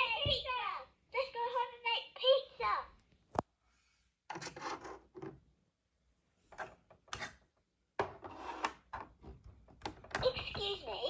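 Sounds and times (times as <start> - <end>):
toy pieces rubbing and scraping: 8.3 - 8.8.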